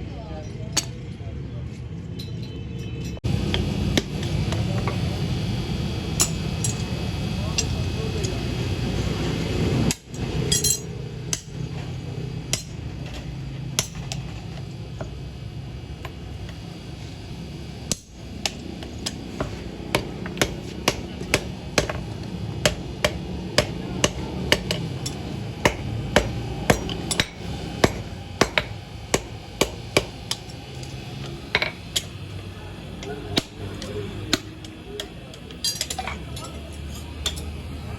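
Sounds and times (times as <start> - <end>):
low hum: 3.2 - 37.9
hammer striking steel: 6.2 - 6.9, 9.9 - 15.2, 17.9 - 32.4, 33.0 - 37.6.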